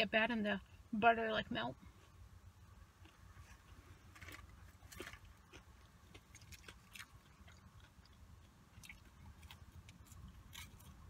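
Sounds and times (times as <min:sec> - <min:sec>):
person chewing food: 0:02.9 - 0:11.0
faint crunches: 0:03.0 - 0:11.0.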